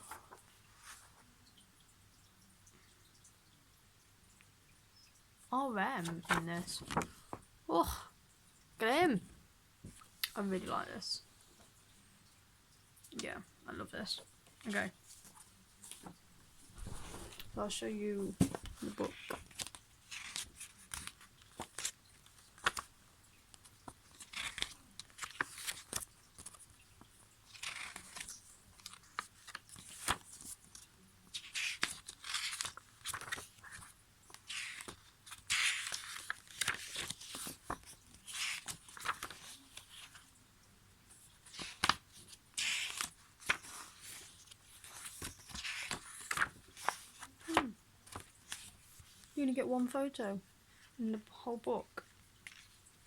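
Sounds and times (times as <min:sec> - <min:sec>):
paper pages swishing: 0:15.9 - 0:21.9, 0:27.5 - 0:30.8, 0:31.4 - 0:40.2, 0:41.4 - 0:49.3.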